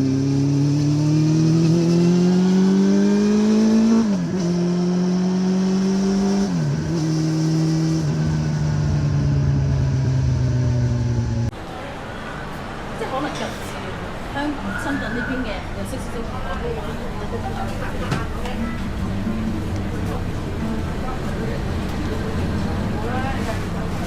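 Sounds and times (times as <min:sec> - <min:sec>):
motorcycle engine accelerating: 0:00.0 - 0:11.6.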